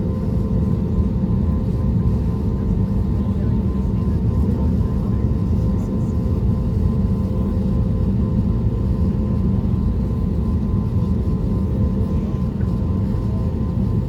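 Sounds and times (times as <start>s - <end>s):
aircraft engines idling rumble: 0.0s - 14.0s
faint engine whine: 0.0s - 14.0s.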